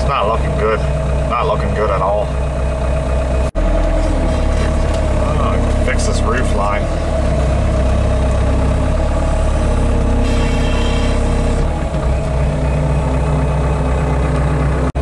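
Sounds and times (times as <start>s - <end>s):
heavy machinery engine running: 0.0s - 15.0s
high-pitched whine: 8.4s - 13.2s.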